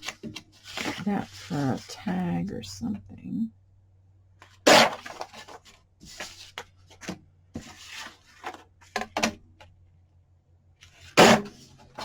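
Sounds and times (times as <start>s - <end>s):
paper rustling: 0.0s - 2.1s, 4.4s - 8.7s.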